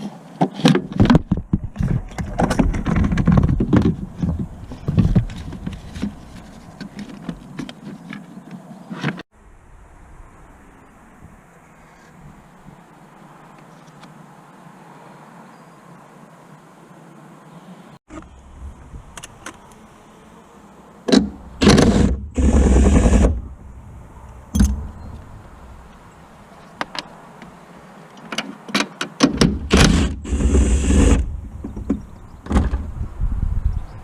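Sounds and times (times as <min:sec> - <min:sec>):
power tool running: 0:21.6 - 0:23.4.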